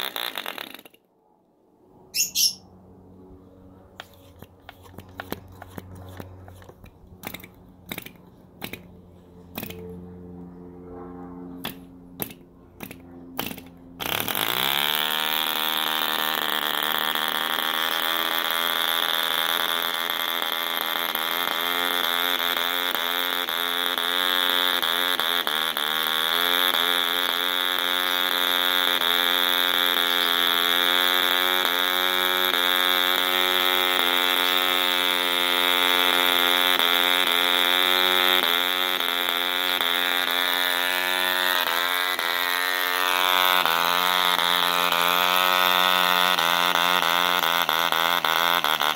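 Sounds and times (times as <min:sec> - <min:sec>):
model aircraft engine buzzing: 0:00.0 - 0:01.0, 0:02.0 - 0:48.9
propeller flicks: 0:03.6 - 0:14.6.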